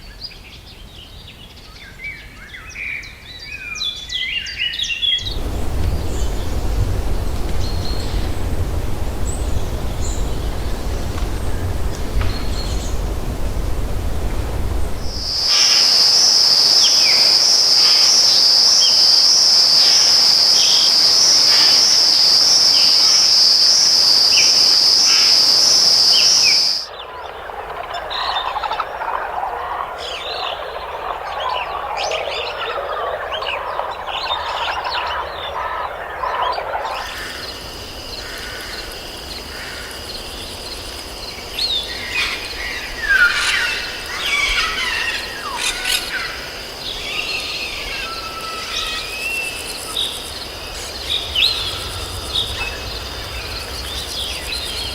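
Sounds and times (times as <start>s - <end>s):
high-pitched insect drone: 5.2s - 26.9s, 37.0s - 54.9s
frogs chirping: 5.2s - 54.9s
bird chirps: 41.5s - 54.9s.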